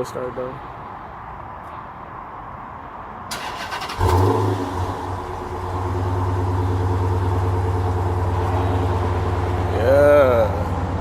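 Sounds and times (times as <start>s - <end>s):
car engine revving and idling: 3.7s - 11.0s.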